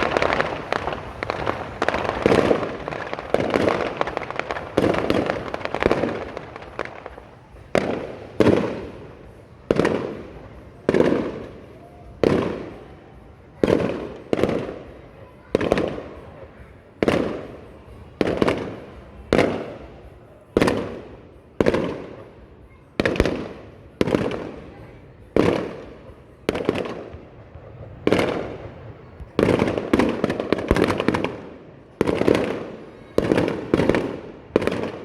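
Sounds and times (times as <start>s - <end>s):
fireworks bursting: 0.0s - 35.0s.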